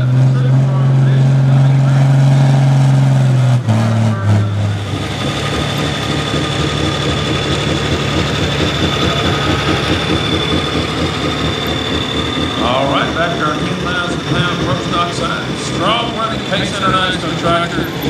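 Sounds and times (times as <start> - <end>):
diesel engine revving and idling: 0.0 - 18.0
high whine: 4.1 - 18.0.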